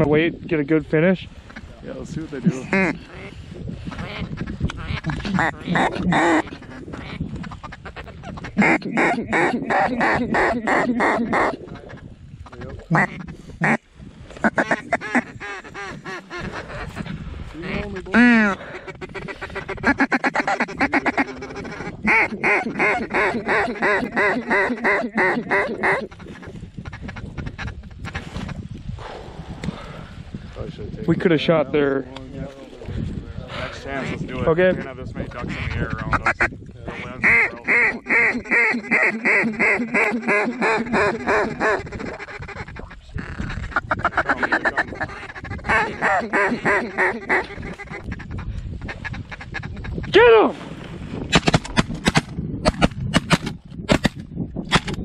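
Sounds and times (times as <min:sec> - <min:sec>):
duck quacking: 0:03.9 - 0:13.8, 0:14.4 - 0:28.2, 0:34.0 - 0:50.2.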